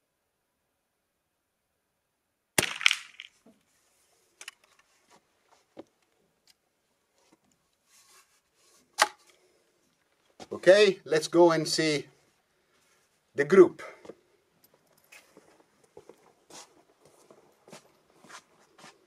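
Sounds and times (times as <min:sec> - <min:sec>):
rifle shots: 0:02.6 - 0:03.3
rifle handling clicks and knocks: 0:04.4 - 0:04.9, 0:08.9 - 0:10.4.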